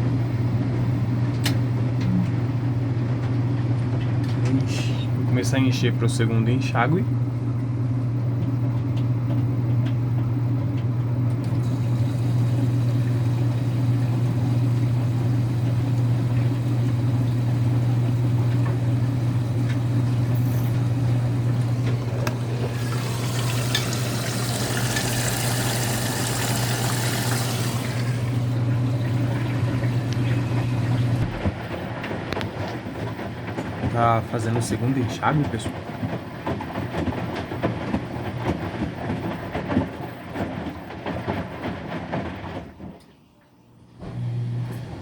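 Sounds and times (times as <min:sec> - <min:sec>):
washing machine low hum: 0:00.0 - 0:45.0
water rushing into drum: 0:11.5 - 0:31.7.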